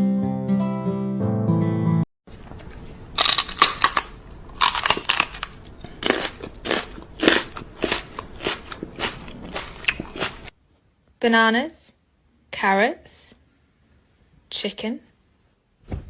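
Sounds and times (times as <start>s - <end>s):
animal chewing crunchy food: 2.4s - 10.5s.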